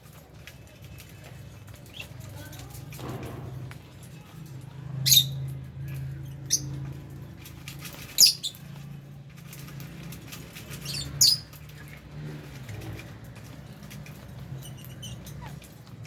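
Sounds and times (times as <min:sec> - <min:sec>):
parrots chirping: 0:05.0 - 0:07.1, 0:08.0 - 0:08.9, 0:10.6 - 0:11.9, 0:14.4 - 0:16.0.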